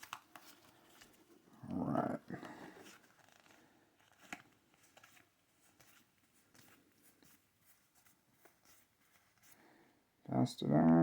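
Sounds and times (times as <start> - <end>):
trading cards clicking and rustling: 0.0 - 7.4.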